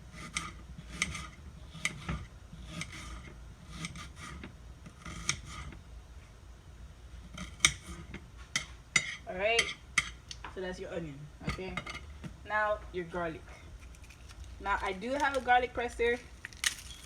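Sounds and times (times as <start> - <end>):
knife slicing onion: 0.1 - 5.7.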